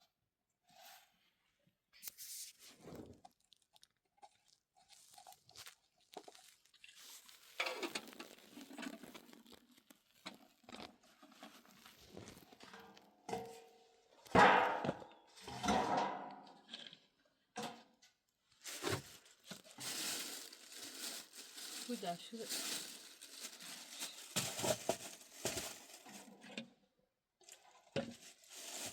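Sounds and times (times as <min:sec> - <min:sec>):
rustling and crinkling: 0:02.0 - 0:13.6, 0:18.5 - 0:26.7, 0:27.4 - 0:28.9.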